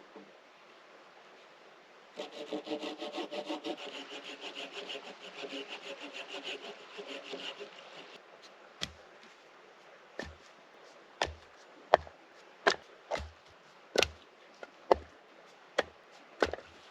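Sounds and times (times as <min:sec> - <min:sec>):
hand saw cutting wood: 0:02.2 - 0:08.2, 0:16.4 - 0:16.7.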